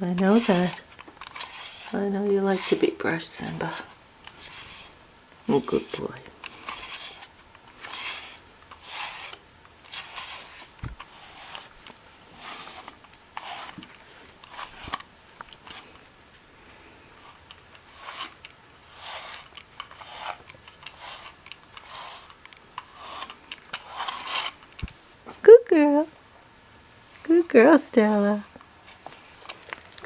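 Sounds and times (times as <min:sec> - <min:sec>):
brush rasping through cat fur: 0:00.1 - 0:16.0, 0:17.1 - 0:24.7.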